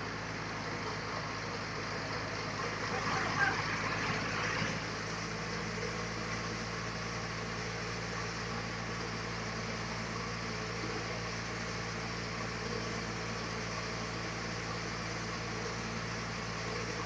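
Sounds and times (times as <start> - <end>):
sawmill machinery running: 0.0 - 17.0.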